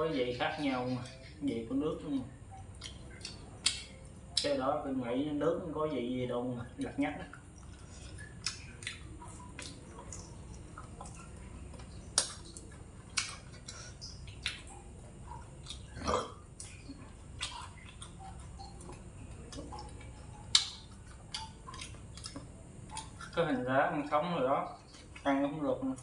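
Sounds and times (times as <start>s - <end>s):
low background hum: 0.0s - 26.0s
person chewing ribs: 2.0s - 4.5s, 6.8s - 26.0s
throaty sound: 15.9s - 16.4s.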